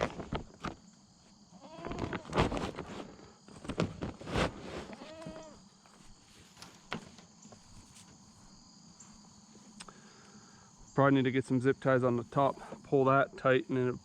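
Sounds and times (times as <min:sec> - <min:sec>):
farm animal bleating: 0:01.5 - 0:02.4, 0:04.9 - 0:05.6.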